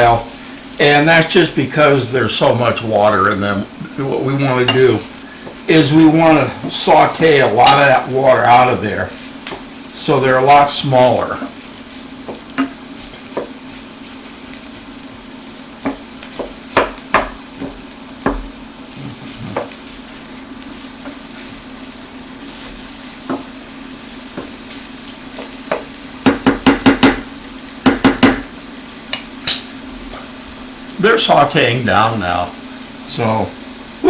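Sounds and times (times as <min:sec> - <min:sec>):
mushrooms sizzling in a pan: 0:00.0 - 0:34.0
utensil knocking against pan: 0:15.8 - 0:18.5, 0:25.7 - 0:28.5.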